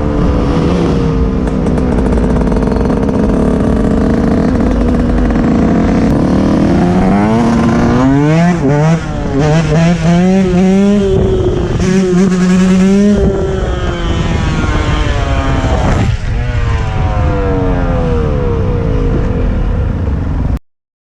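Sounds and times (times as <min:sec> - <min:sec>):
dirt bike engine revving: 0:00.0 - 0:19.6.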